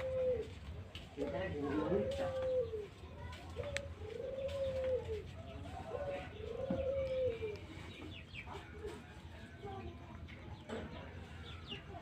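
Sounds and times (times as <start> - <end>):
pigeons cooing: 0.0 - 9.2.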